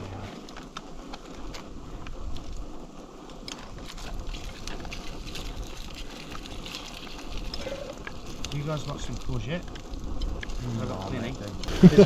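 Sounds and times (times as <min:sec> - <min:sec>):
low rumble: 0:00.0 - 0:01.1
oil crackling and popping: 0:00.3 - 0:12.0.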